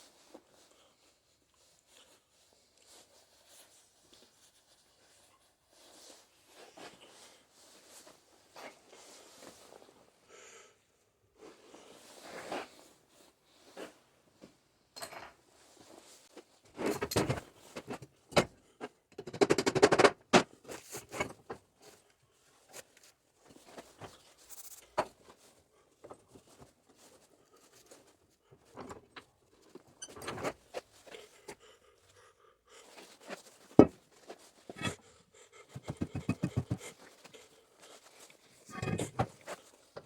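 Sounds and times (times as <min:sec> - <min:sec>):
metal tools knocking and rattling: 0:19.1 - 0:20.4, 0:35.8 - 0:36.8.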